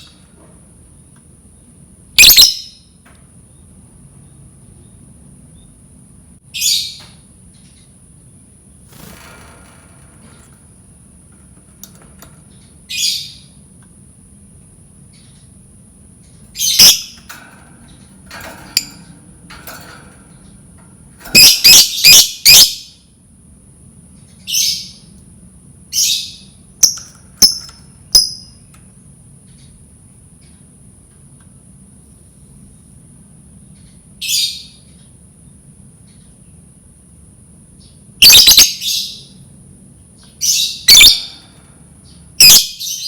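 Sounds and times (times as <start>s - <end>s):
lovebird chirping: 2.2s - 2.9s, 6.6s - 7.0s, 12.5s - 13.6s, 16.2s - 17.2s, 21.3s - 23.0s, 25.9s - 28.6s, 38.2s - 39.3s, 40.4s - 41.3s, 42.4s - 43.0s.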